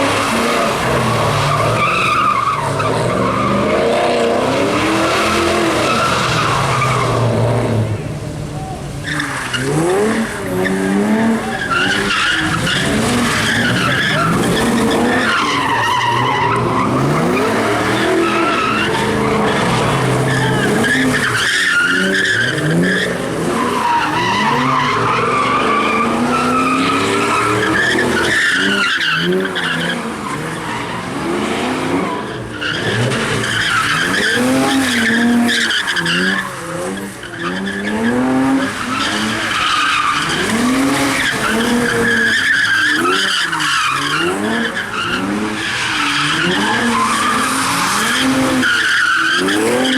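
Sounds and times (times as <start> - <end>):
tyres squealing: 0.0 - 4.0, 8.6 - 49.9
car engine revving: 0.0 - 49.9.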